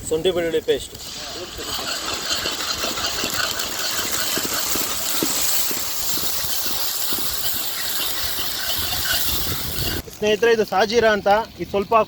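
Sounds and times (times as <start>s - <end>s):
onions sizzling in hot oil: 4.6s - 10.2s.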